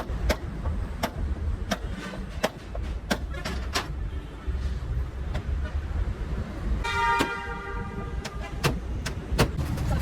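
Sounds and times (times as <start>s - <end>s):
vehicle horn honk: 6.8s - 8.6s.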